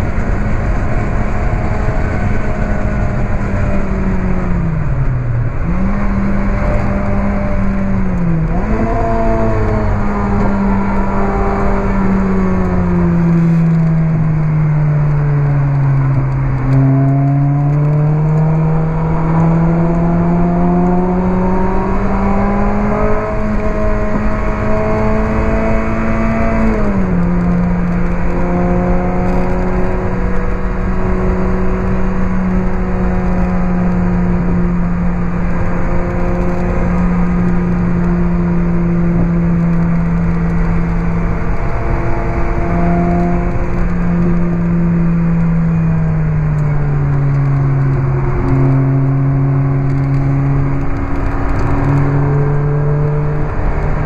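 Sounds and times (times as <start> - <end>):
car engine revving: 0.0 - 54.0
wind and road noise: 0.0 - 54.0.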